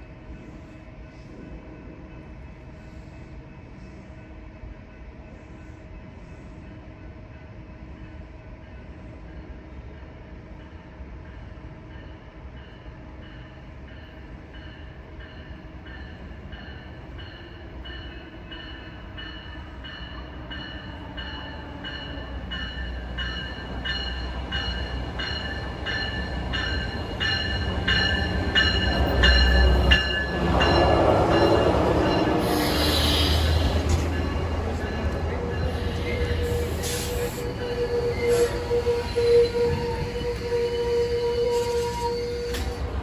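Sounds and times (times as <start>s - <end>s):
high ringing from rails: 13.4s - 42.9s
train wheels clicking on rail joints: 20.0s - 43.0s.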